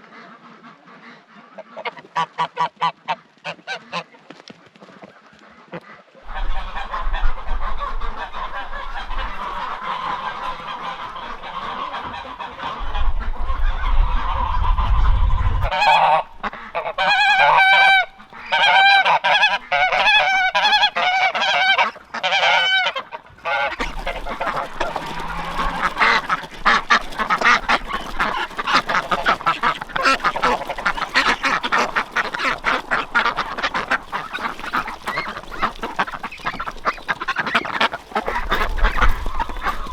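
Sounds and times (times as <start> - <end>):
geese honking: 0.0 - 4.2, 5.0 - 39.9
low rumble: 12.8 - 16.7.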